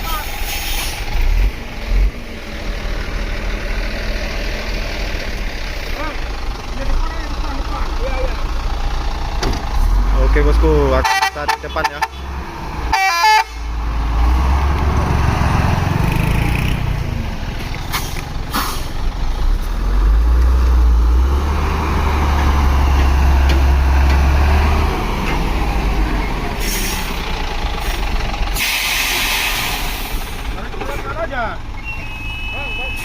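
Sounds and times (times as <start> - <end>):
truck diesel engine rumbling: 0.0 - 33.0
short air hisses: 0.3 - 1.1, 17.9 - 19.0, 28.6 - 30.4.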